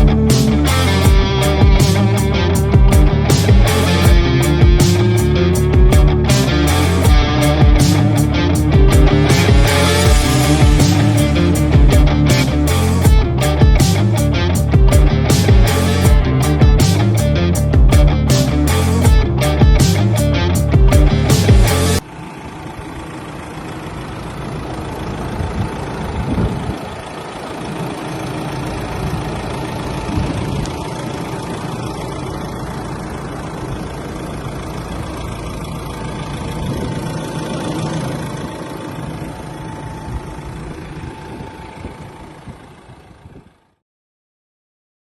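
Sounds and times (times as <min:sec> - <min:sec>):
background music: 0:00.0 - 0:22.0
diesel engine idling: 0:00.0 - 0:43.8.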